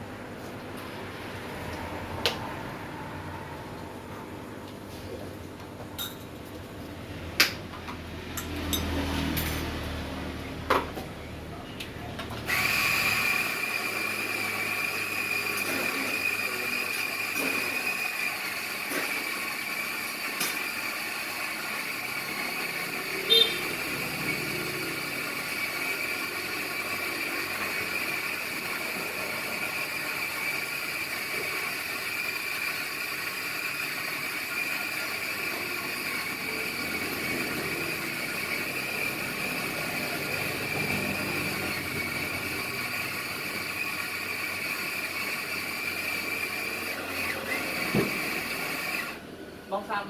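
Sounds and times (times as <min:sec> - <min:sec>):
machine whining: 0:12.4 - 0:49.2.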